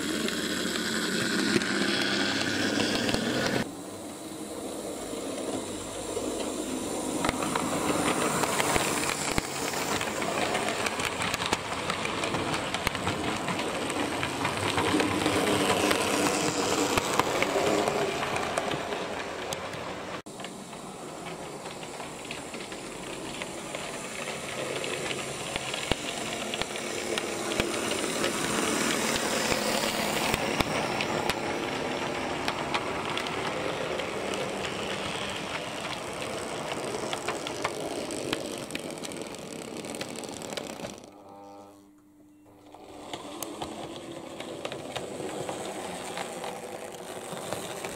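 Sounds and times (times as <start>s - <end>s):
model train wheels rattling: 5.3s - 41.2s, 42.6s - 47.9s
electric motor hum: 20.8s - 47.9s.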